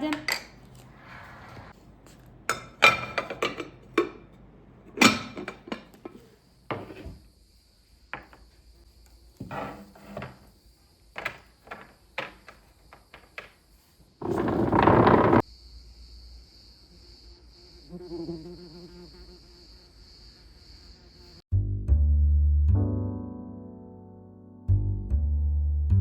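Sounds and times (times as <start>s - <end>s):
dishes and utensils clattering: 0.0s - 7.1s.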